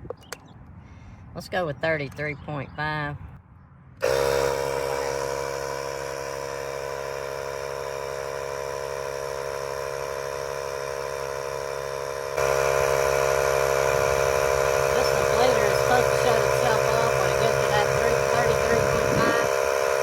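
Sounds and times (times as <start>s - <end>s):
air compressor humming: 4.0s - 20.0s.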